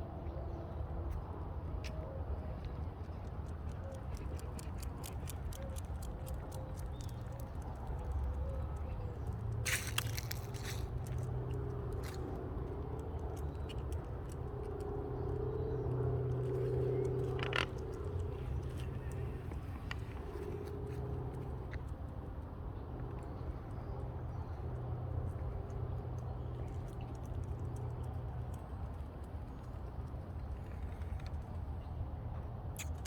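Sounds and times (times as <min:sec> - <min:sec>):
rustle: 0:09.6 - 0:10.9.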